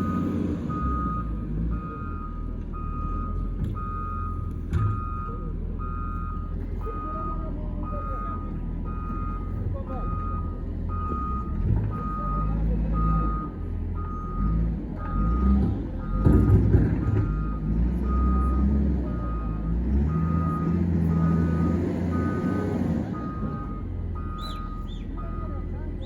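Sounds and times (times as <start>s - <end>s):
diesel engine under load: 0.0s - 26.0s
reversing alarm beeping: 0.0s - 26.0s.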